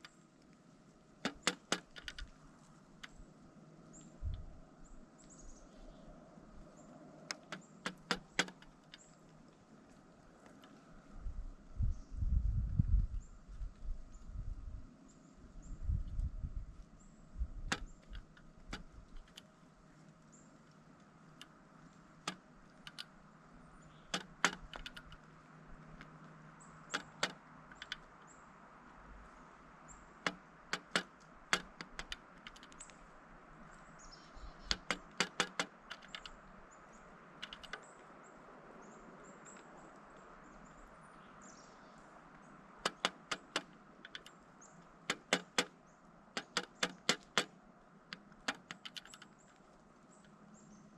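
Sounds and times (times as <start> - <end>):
woodpecker pecking taps: 1.2 - 3.2, 7.2 - 10.9, 17.6 - 28.3, 30.2 - 33.0, 34.5 - 38.2, 42.2 - 50.4.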